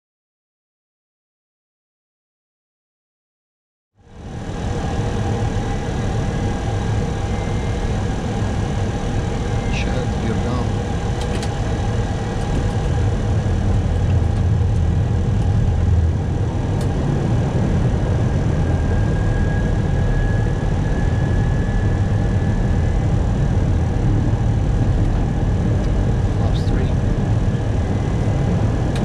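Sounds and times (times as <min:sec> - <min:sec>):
aircraft cockpit engine rumble: 0:04.0 - 0:29.0
faint steady tones: 0:04.1 - 0:13.9.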